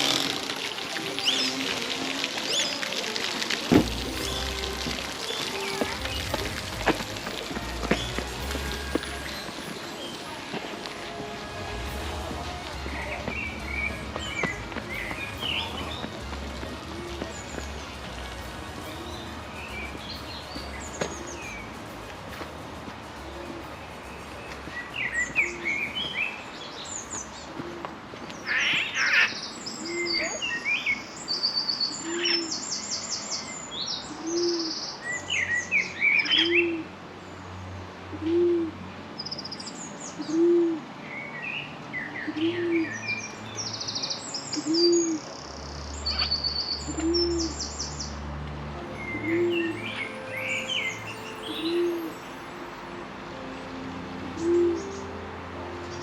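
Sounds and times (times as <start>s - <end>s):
birds chirping and trilling: 0.0s - 22.0s, 23.1s - 48.2s, 48.9s - 56.0s.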